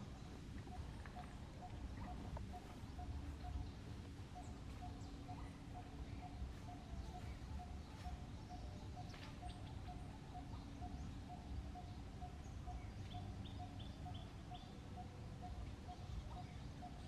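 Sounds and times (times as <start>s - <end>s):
birds calling: 0.0s - 17.0s
low outdoor rumble: 0.0s - 17.0s.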